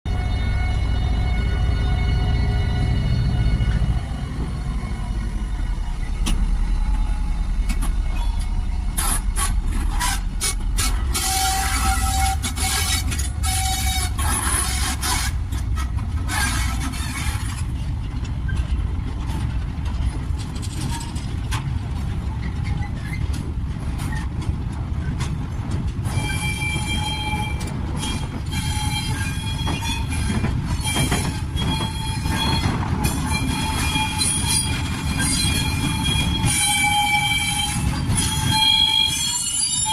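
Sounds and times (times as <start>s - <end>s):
low train rumble: 0.1s - 39.9s
train wheels squealing on rails: 0.1s - 39.9s
sharp clicks and scraping: 7.6s - 26.2s.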